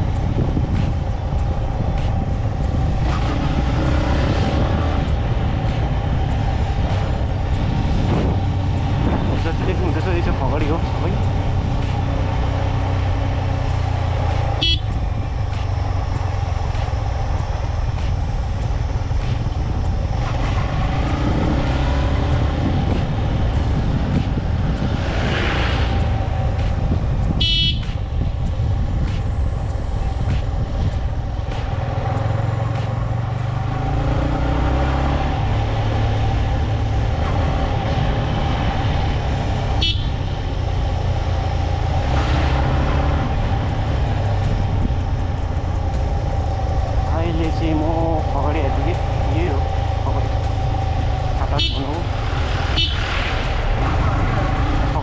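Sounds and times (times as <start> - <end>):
wind on microphone: 0.0 - 9.8, 17.6 - 33.5, 35.3 - 55.0
motorcycle engine running: 0.0 - 24.9, 25.9 - 42.1, 42.8 - 55.0
horn beeps: 14.5 - 15.0, 27.4 - 28.1, 39.8 - 40.4, 51.4 - 52.0, 52.7 - 53.1.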